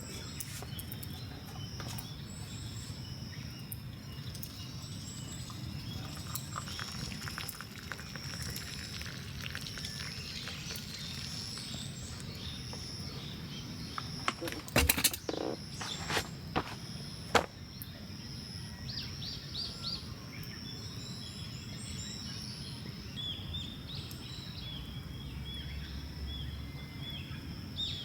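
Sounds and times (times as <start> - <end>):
high-pitched insect trill: 2.5 - 14.2.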